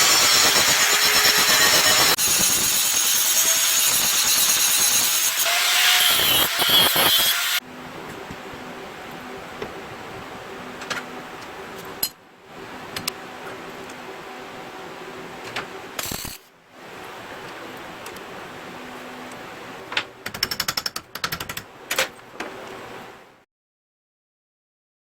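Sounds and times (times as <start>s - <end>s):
power tool grinding steel: 0.0s - 7.6s.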